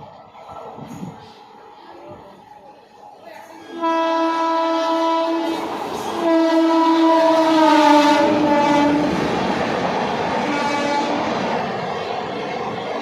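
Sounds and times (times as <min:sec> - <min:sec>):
passing train running noise: 0:00.0 - 0:13.0
train horn blasts: 0:03.7 - 0:09.2, 0:10.4 - 0:11.3.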